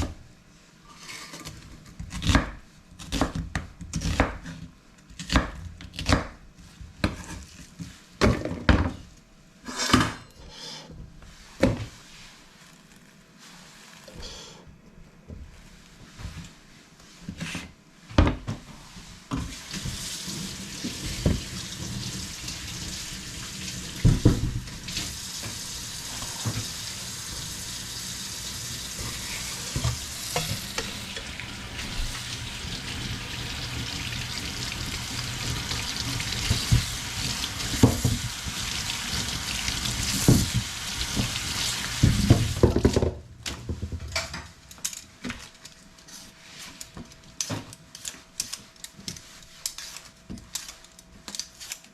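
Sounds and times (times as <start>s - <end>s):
food sizzling in a pan: 19.5s - 42.6s.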